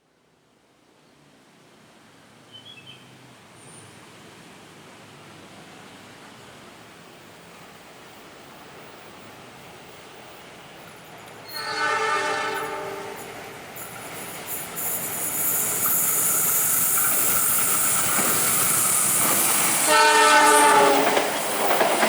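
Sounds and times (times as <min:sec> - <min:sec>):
distant train rumble: 0:06.0 - 0:22.0.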